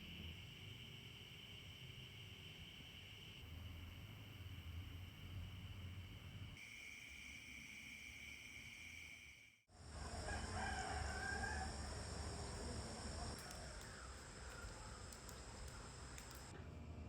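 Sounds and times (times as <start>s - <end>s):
insects trilling: 7.8s - 16.5s
rooster crowing: 9.9s - 12.6s.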